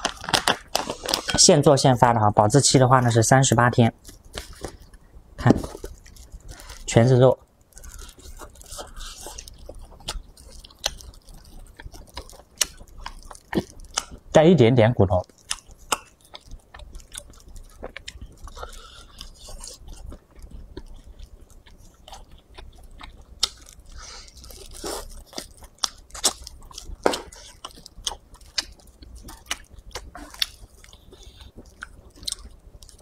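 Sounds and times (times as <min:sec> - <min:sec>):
chewing and biting meat: 0:07.6 - 0:14.3, 0:15.2 - 0:33.0.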